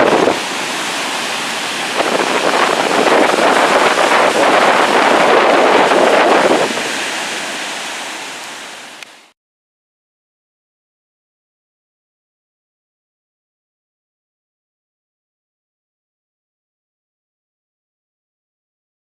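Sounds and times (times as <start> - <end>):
wind buffeting microphone: 0.0 - 7.9
large waves breaking ashore: 0.0 - 9.4.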